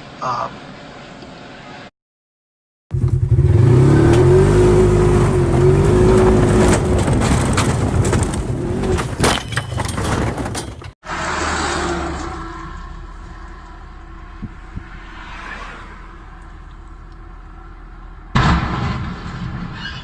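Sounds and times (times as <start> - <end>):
vehicle engine running: 2.9 - 8.0
sharp knocks and clatter: 6.0 - 11.0.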